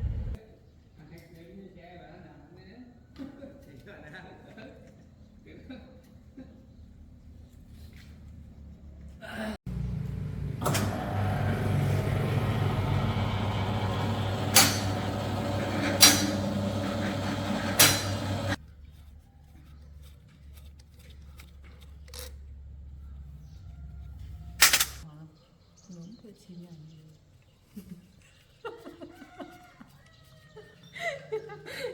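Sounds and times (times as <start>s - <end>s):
motor droning: 9.7s - 18.6s
sharp clicks: 24.6s - 25.0s.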